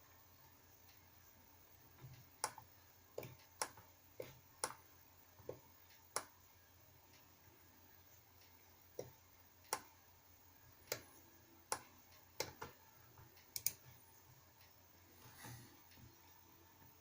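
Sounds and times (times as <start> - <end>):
computer mouse clicks: 2.0 - 4.8, 10.8 - 11.1, 11.7 - 12.8, 13.4 - 13.9
soft rustle: 15.0 - 16.8.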